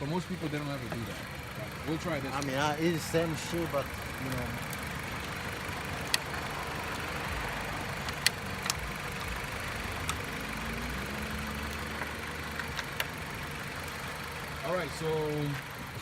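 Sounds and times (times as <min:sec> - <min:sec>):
car engine idling: 0:00.0 - 0:16.0
jumper cable clamps clicking: 0:08.0 - 0:10.4.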